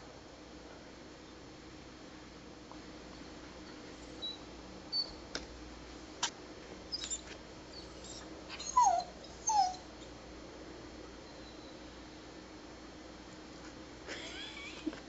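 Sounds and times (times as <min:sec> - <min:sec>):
faint clicks and squeaks: 0:06.2 - 0:10.2
dog whimpering: 0:06.9 - 0:10.0.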